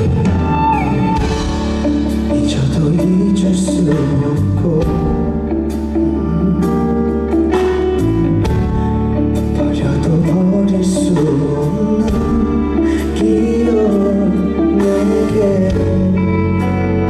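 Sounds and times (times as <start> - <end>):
percussion strikes: 0.0 - 3.2
live band music: 0.0 - 17.0
man singing slow song: 2.0 - 7.4, 8.9 - 17.0.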